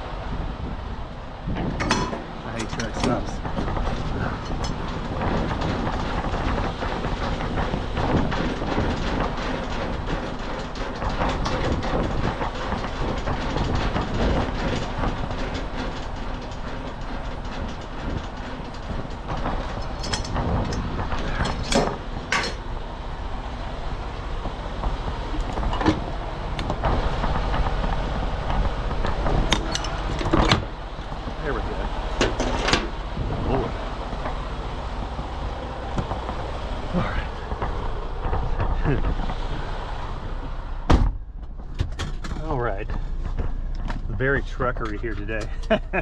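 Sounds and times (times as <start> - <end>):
diesel truck engine running: 0.0 - 46.0.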